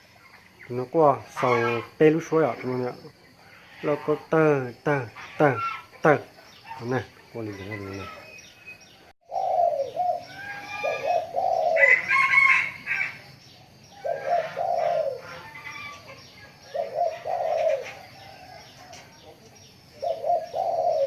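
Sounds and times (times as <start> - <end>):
dove cooing: 9.2 - 13.2, 13.9 - 21.0
higher-pitched dove call: 9.3 - 13.1, 20.0 - 21.0.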